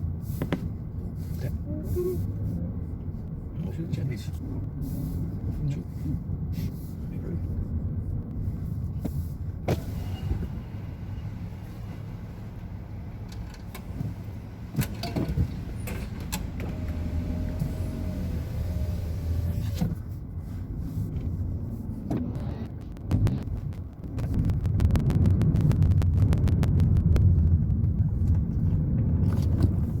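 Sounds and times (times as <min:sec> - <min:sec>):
car engine and road rumble: 0:00.0 - 0:30.0
clicks and rattles in car cabin: 0:13.2 - 0:20.2, 0:26.6 - 0:30.0.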